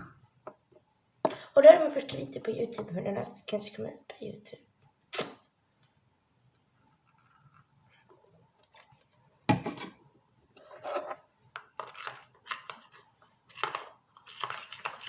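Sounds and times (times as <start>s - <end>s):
spoon scraping in a bowl: 10.6s - 11.2s.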